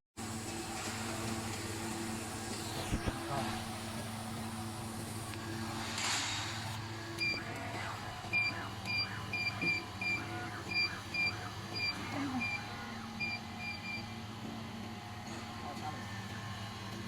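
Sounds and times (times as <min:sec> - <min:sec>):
machine low hum: 0:00.2 - 0:17.0.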